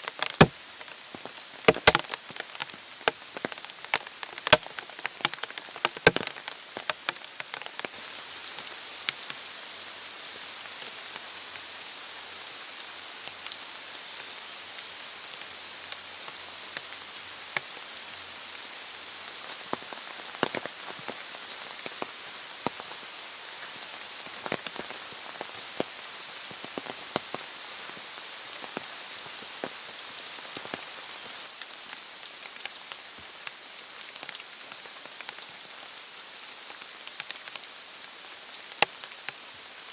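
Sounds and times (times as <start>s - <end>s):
steady rain falling: 0.0s - 39.9s
heavy raindrops tapping: 1.7s - 2.2s, 4.5s - 6.3s.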